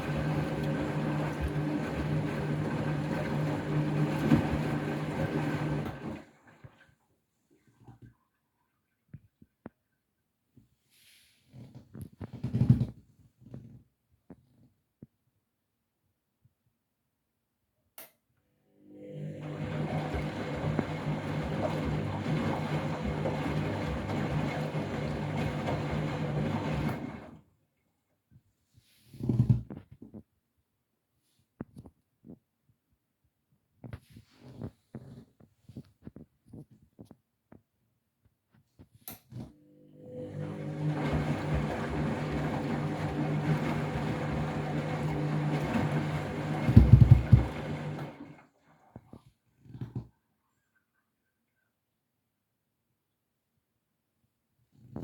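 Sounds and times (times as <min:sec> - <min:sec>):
churning water: 0:00.0 - 0:06.8, 0:19.4 - 0:27.3, 0:40.2 - 0:48.5
washing machine running: 0:00.0 - 0:06.8, 0:18.9 - 0:27.4, 0:39.7 - 0:48.5
heavy thuds of tumbling drum: 0:46.7 - 0:47.6.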